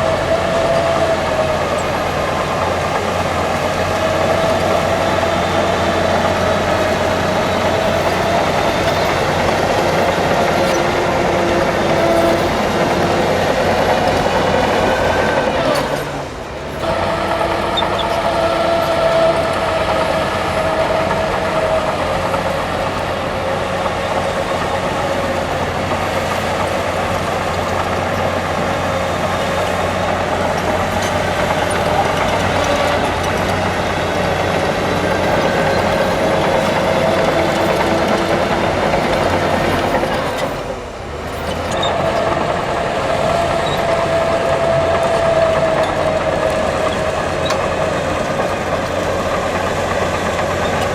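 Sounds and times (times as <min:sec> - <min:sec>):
diesel machinery engine hum: 0:00.0 - 0:50.9
held whine: 0:00.0 - 0:50.9.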